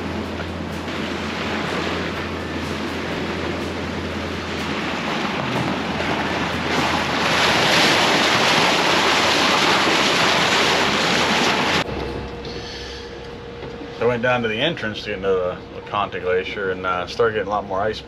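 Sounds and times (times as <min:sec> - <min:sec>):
water rushing past boat: 0:00.0 - 0:17.9.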